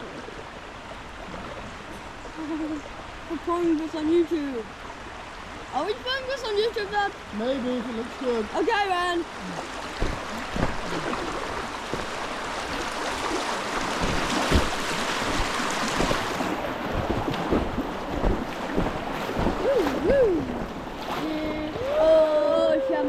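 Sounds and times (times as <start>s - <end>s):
river water rushing: 0.0s - 23.0s
wind buffeting microphone: 9.8s - 22.4s
knocks against boat: 10.0s - 11.2s, 11.8s - 12.3s, 13.9s - 16.4s.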